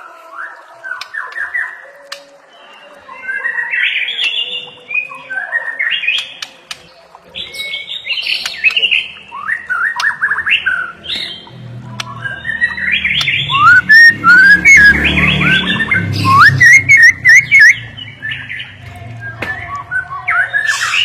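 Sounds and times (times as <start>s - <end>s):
bird singing whistled notes: 7.4s - 21.0s.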